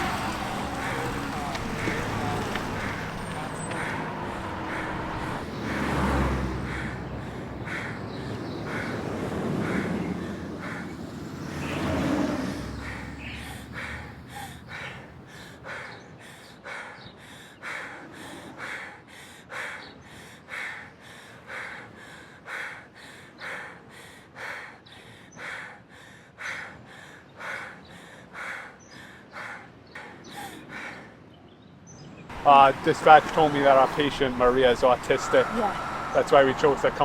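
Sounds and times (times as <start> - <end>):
person panting heavily: 0.0 - 10.9, 12.8 - 31.1.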